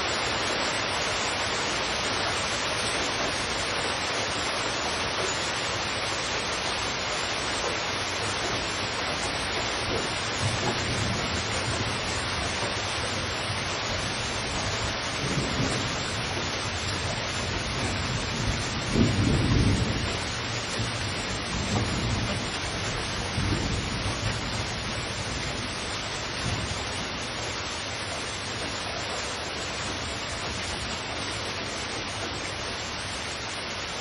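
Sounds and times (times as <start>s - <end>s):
heavy rain: 0.0s - 34.0s
thunder rumbling: 7.6s - 33.2s.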